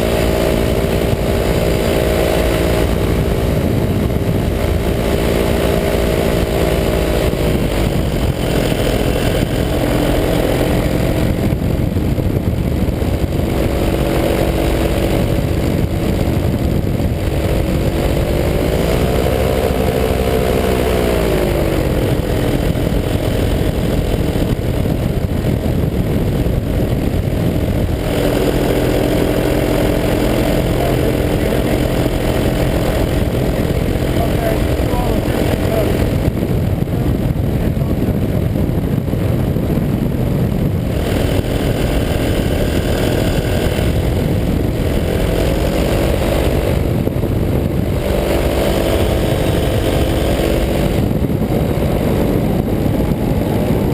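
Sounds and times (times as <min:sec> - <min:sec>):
low rumble: 0:00.0 - 0:53.9
paramotor engine drone: 0:00.0 - 0:53.9.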